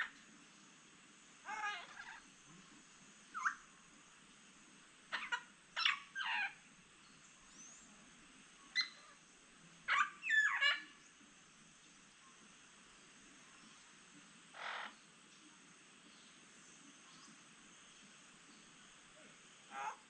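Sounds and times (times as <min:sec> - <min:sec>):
faint high hum: 0:00.0 - 0:20.0
parrots squawking: 0:01.4 - 0:02.2, 0:03.4 - 0:03.6, 0:05.1 - 0:06.6, 0:09.9 - 0:10.8, 0:14.6 - 0:14.9, 0:19.7 - 0:20.0.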